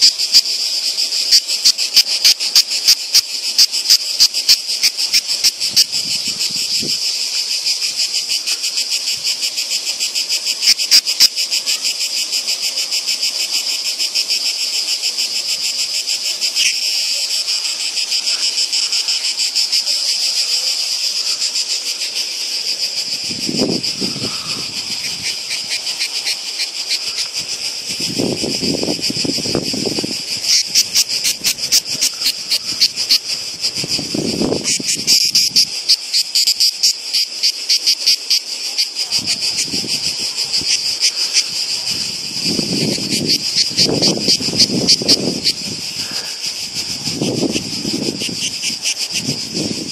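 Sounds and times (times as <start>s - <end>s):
cicadas buzzing: 0.0s - 49.9s.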